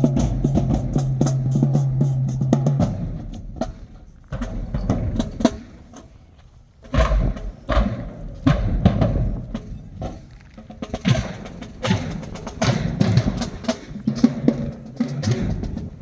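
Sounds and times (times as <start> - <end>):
bass drum booms: 0.0 - 3.8, 6.9 - 9.7
marching band drum hits: 0.0 - 3.8, 6.8 - 16.0.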